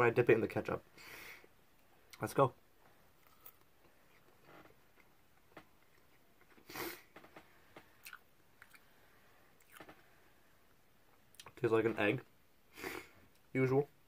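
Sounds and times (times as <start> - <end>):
person chewing: 3.2 - 5.1, 7.9 - 8.9, 9.6 - 10.0.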